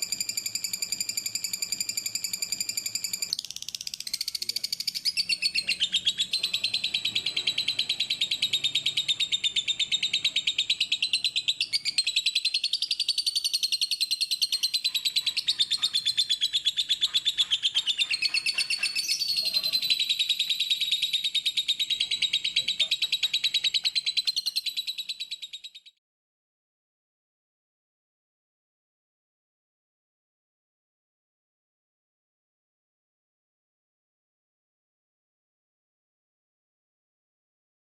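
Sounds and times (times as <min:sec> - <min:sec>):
bird chattering trill: 0:00.0 - 0:25.9.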